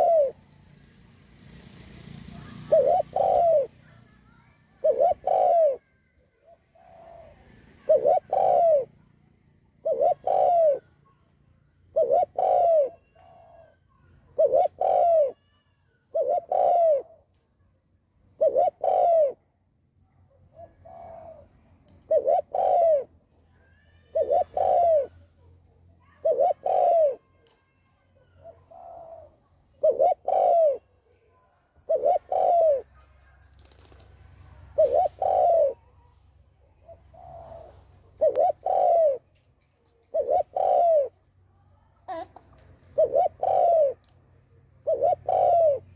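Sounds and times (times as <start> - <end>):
dove cooing: 0.0 - 0.5, 1.5 - 9.0, 9.8 - 11.0, 11.8 - 17.3, 18.4 - 19.4, 20.5 - 23.2, 24.0 - 25.3, 26.0 - 27.4, 28.2 - 30.9, 31.8 - 33.0, 33.6 - 39.3, 39.9 - 41.2, 42.1 - 44.0, 44.6 - 45.9.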